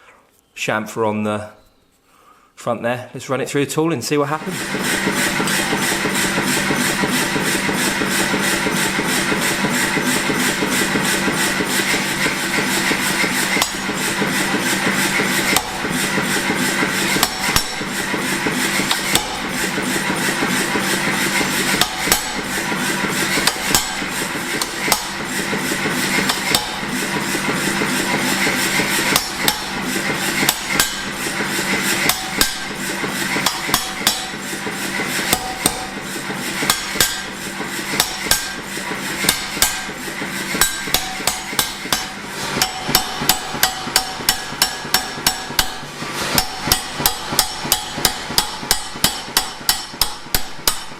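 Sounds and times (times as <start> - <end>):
steady machine hum: 4.3 - 50.9
hammer blows on steel: 18.8 - 37.4.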